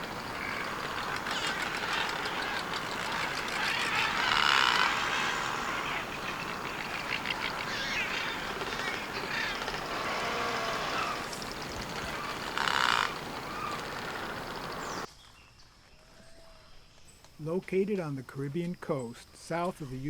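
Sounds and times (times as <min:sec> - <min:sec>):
chorus of birds calling: 0:00.0 - 0:15.1.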